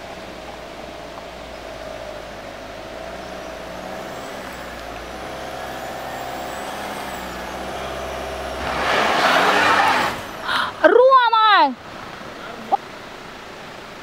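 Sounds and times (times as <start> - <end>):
vehicle engine running: 0.0 - 11.6.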